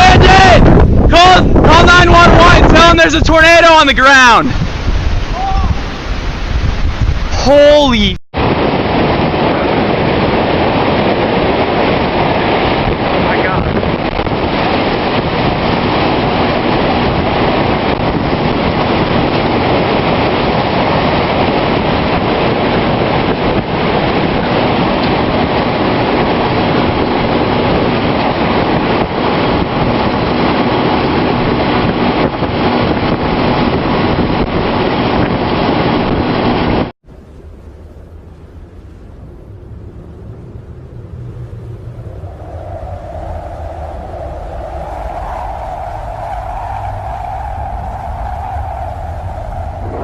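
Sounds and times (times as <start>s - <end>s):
strong wind roaring: 0.0s - 50.0s.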